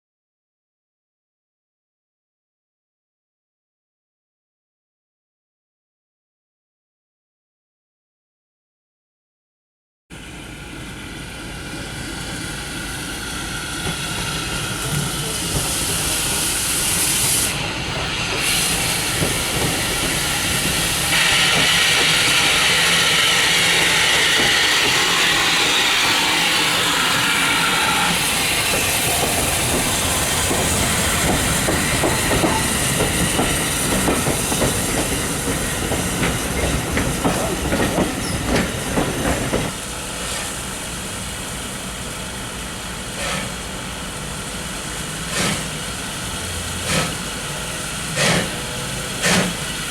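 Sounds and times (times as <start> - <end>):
steady train rumble: 10.1 - 49.9
loud steam hiss: 10.2 - 49.9.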